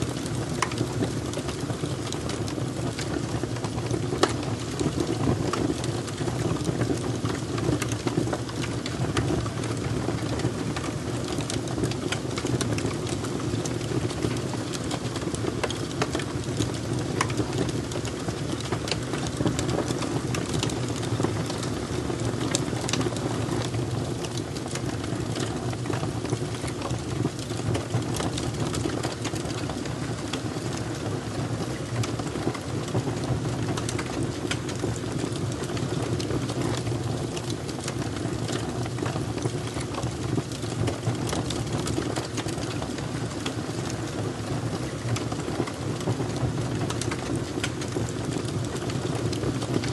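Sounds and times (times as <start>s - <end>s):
fire crackling: 0.0s - 49.9s.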